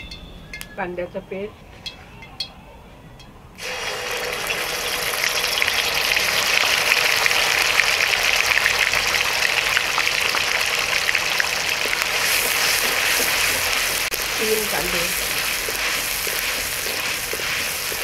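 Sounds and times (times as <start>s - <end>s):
onion paste sizzling in oil: 3.6s - 18.0s.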